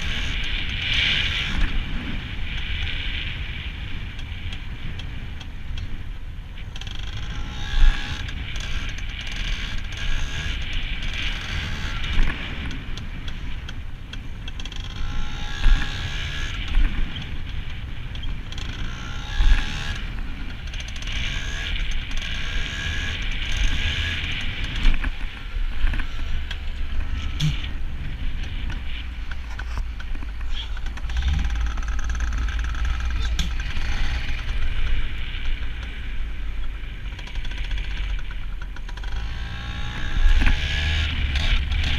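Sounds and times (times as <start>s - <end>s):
motorbike engine revving: 0.0s - 3.6s, 6.7s - 12.9s, 14.4s - 41.9s
low microphone rumble: 0.0s - 41.9s.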